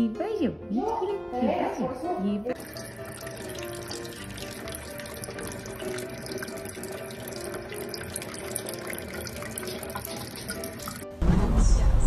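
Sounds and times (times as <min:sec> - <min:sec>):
tap water splashing into sink: 0:02.6 - 0:11.1.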